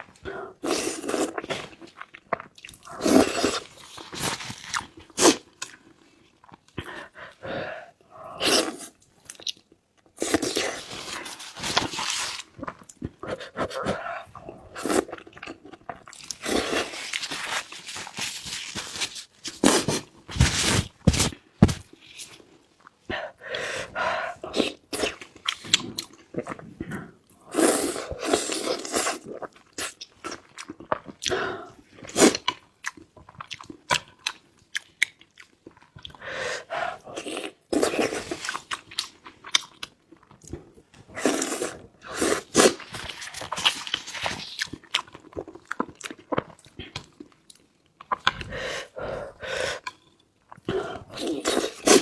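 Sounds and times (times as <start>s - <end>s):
person chewing crunchy food: 10.2s - 22.8s, 37.2s - 48.6s, 49.8s - 52.0s.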